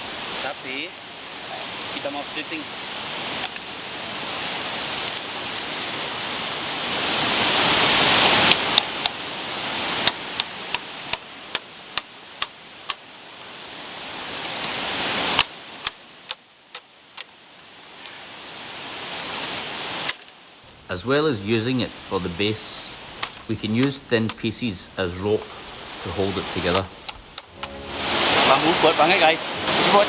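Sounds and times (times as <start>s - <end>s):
steady hiss: 0.0s - 30.0s
rushing noise: 20.8s - 30.0s.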